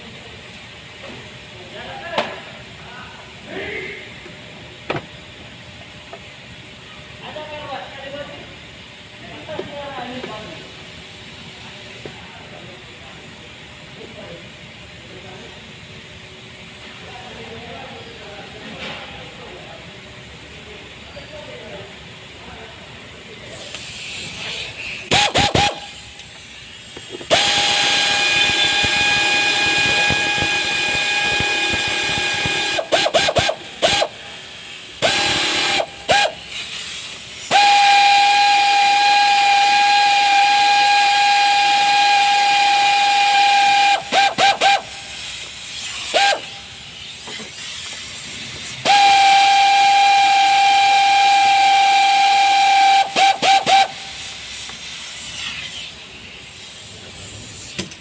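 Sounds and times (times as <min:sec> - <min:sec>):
air blow gun hissing: 0:23.5 - 0:58.0.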